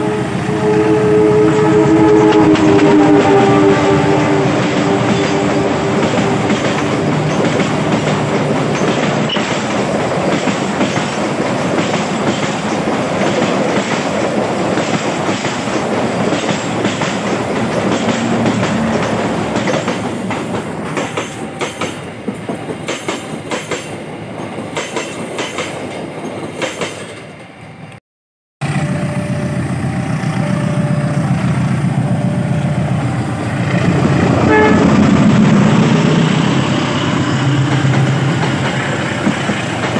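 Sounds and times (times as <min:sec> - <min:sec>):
short train horn notes: 0:00.0 - 0:09.3, 0:17.5 - 0:20.1, 0:28.6 - 0:38.6
locomotive engine running: 0:00.0 - 0:12.7, 0:15.5 - 0:21.6, 0:28.6 - 0:39.9
train wheels clacking on rails: 0:01.3 - 0:27.6, 0:28.6 - 0:39.9.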